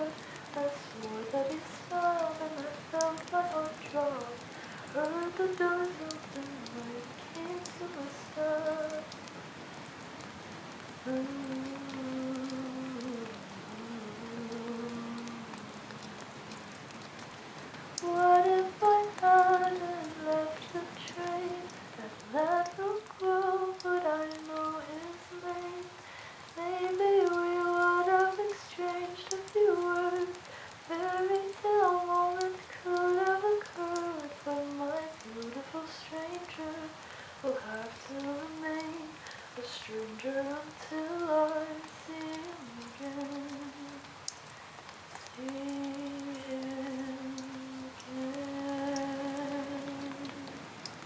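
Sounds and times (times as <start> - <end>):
faint rain pattering: 0.0 - 51.0
woman humming a melody: 11.1 - 16.1, 45.2 - 50.6.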